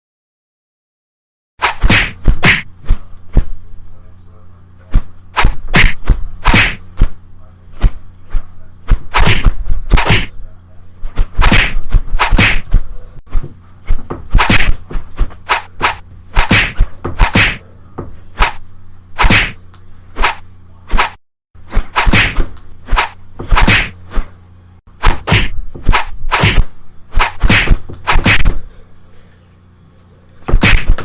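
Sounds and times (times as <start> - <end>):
knocks and thwacks: 1.6 - 3.5, 4.9 - 7.2, 8.9 - 10.3, 11.1 - 18.6, 19.2 - 19.6, 20.2 - 24.3, 25.0 - 28.6, 30.5 - 31.0
low electrical hum: 1.6 - 31.0.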